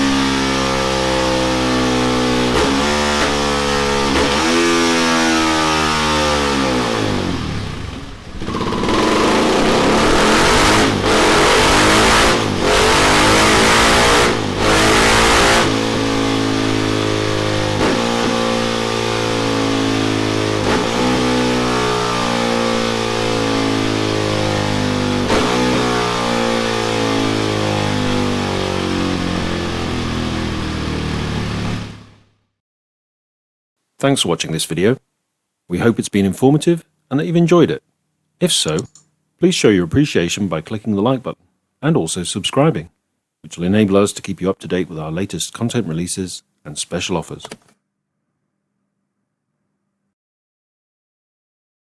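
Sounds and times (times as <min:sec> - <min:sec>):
motorcycle engine revving: 0:00.0 - 0:32.4.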